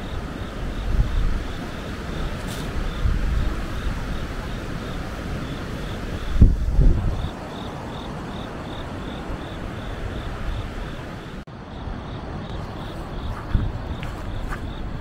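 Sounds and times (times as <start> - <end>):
insect chirping: 0.0 - 15.0
wind buffeting microphone: 0.0 - 15.0.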